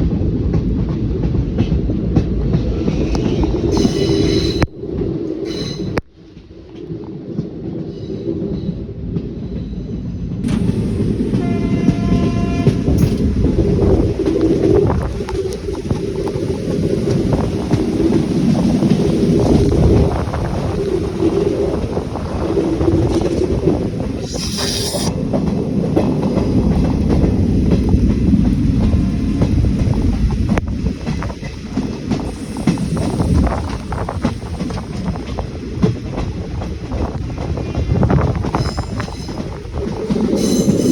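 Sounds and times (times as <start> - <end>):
train wheels rumbling on track: 0.0 - 40.9
rail joint clicks: 0.4 - 40.9
train horn: 11.3 - 13.2
short hiss: 24.2 - 25.1.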